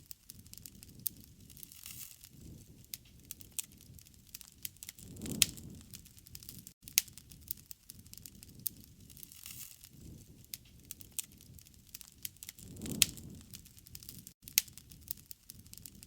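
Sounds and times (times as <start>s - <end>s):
wood crackling: 0.0s - 16.0s
low rumble of flames: 0.1s - 16.0s
sharp fire pops: 0.3s - 16.0s.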